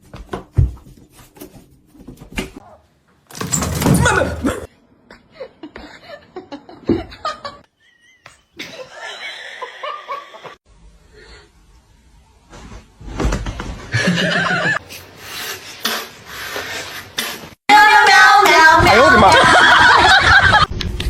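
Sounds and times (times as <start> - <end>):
person laughing: 19.1 - 20.7.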